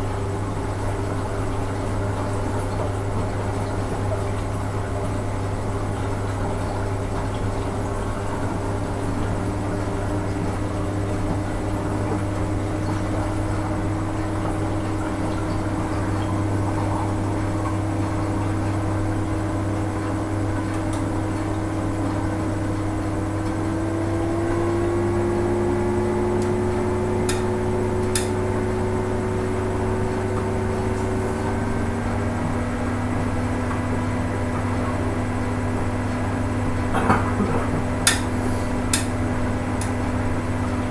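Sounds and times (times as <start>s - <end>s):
washing machine motor hum: 0.0s - 40.9s.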